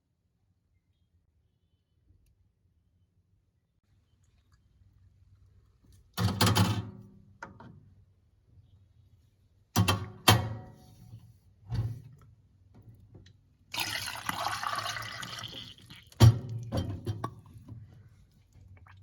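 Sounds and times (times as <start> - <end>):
toilet flushing water rush: 13.7 - 17.4.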